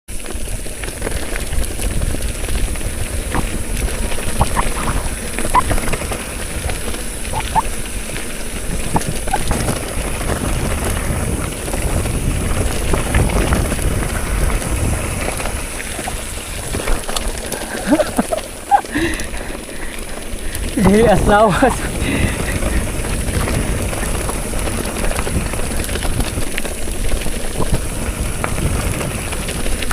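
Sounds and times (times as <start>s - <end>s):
wind rumbling on microphone: 0.1s - 29.9s
bike squeaks and clicks: 4.2s - 5.9s, 7.2s - 7.8s, 8.8s - 9.9s.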